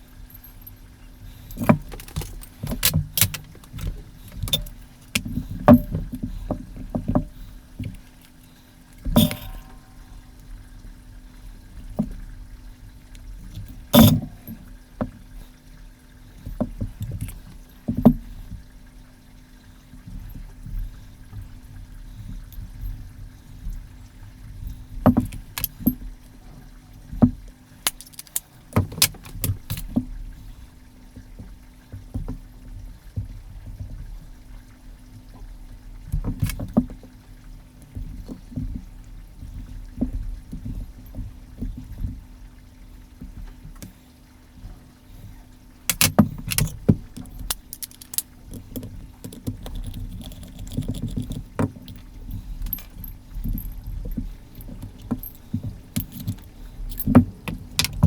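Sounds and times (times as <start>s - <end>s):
faint steady hum: 0.0s - 58.0s
small parts clicking against tools: 1.4s - 6.0s, 25.1s - 26.0s, 27.8s - 30.0s, 45.9s - 58.0s.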